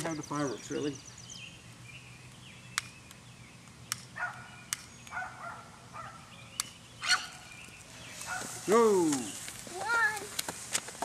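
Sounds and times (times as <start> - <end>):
dog barking: 4.2 - 4.5, 5.1 - 6.2
sharp clicks or snaps: 4.7 - 5.1.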